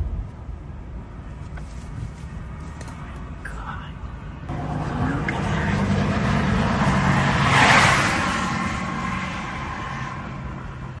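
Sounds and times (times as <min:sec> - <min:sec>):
engine and tyre hum: 0:00.0 - 0:11.0
vehicle passing close by: 0:04.5 - 0:11.0.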